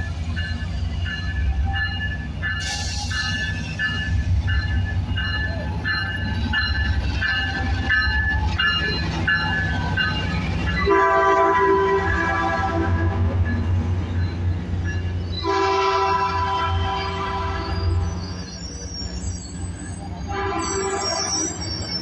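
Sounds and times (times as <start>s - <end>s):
locomotive bell ringing: 0.0s - 22.0s
train engine and wheels rumble: 0.0s - 22.0s
train air horn chord: 10.9s - 13.2s, 15.4s - 17.8s.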